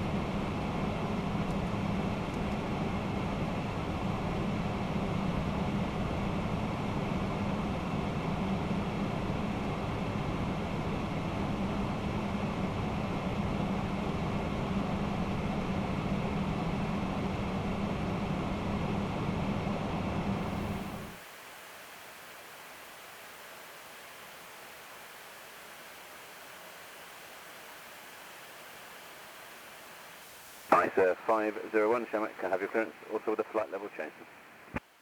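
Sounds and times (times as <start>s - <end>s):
aircraft engine noise: 20.4s - 34.8s.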